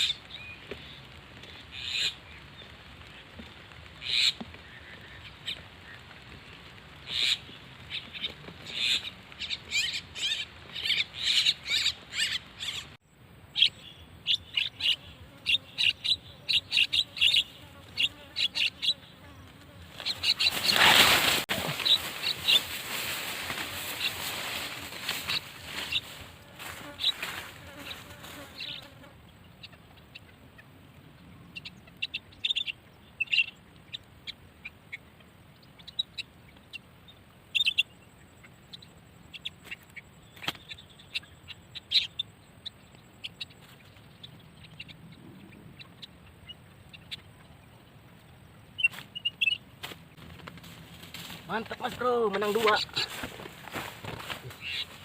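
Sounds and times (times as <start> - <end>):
starling chirps: 7.1 - 19.1, 20.0 - 26.2, 37.1 - 38.0, 48.7 - 49.6, 54.5 - 55.0.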